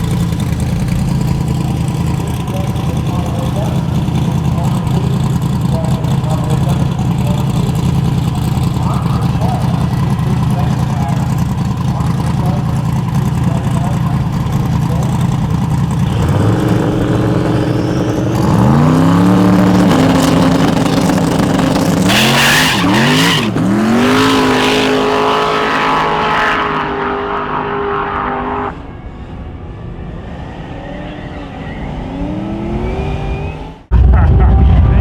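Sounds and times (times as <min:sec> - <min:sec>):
car engine revving: 0:00.0 - 0:35.0
tyres screeching: 0:15.9 - 0:25.7.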